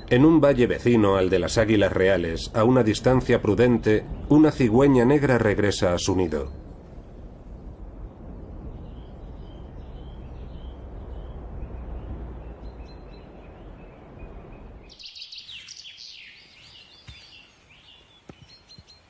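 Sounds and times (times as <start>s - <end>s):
steady low rush: 0.0s - 15.1s
small birds chirping and singing: 8.8s - 19.0s.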